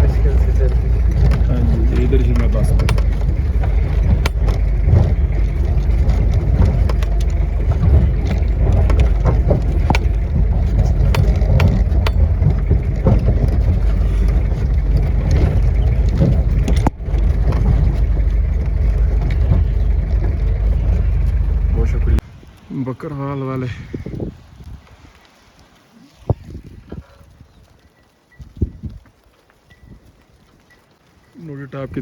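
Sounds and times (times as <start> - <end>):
rocks knocking and rattling: 0.0 - 22.7, 23.6 - 32.0
wind on microphone: 0.0 - 22.7, 23.6 - 25.2, 26.0 - 30.5
motorcycle engine rumbling: 0.0 - 24.9.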